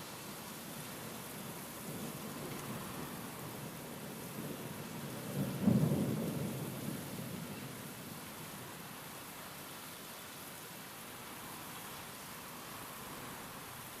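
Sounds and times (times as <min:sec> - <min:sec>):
rain hissing: 0:00.0 - 0:14.0
thunder clap rumbling: 0:05.3 - 0:07.3.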